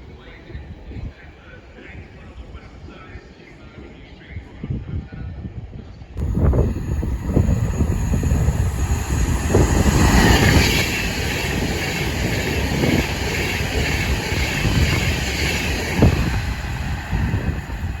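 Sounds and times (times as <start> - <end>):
train passing close by: 6.2 - 18.0.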